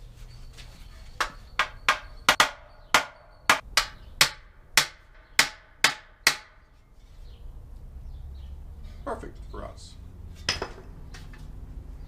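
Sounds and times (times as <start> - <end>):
hammer striking steel panel: 1.2 - 6.6.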